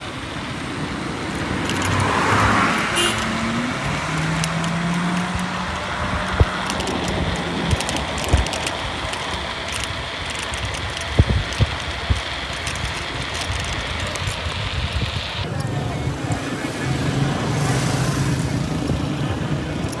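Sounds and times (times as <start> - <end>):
steady engine hum: 0.0 - 20.0
vehicle passing: 0.0 - 20.0
light rattling clicks: 1.3 - 16.4, 19.7 - 20.0.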